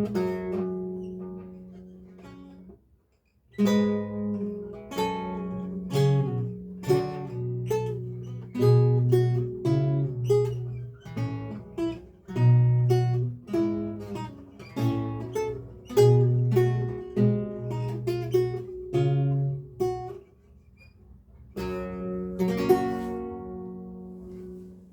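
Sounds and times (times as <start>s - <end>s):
lute playing: 3.7s - 20.2s, 21.6s - 24.9s.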